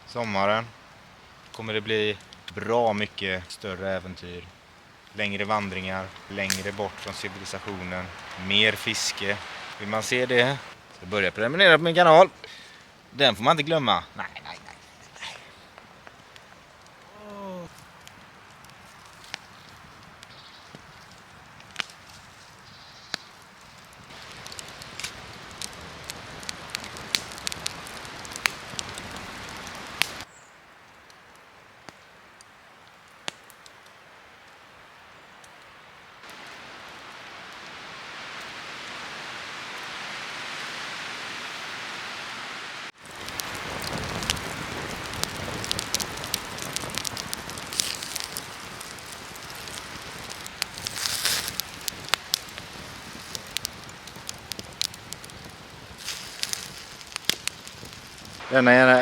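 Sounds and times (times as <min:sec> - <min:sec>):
smooth hiss: 0:00.0 - 0:21.0, 0:33.7 - 0:59.0
campfire crackling and popping: 0:00.0 - 0:59.0.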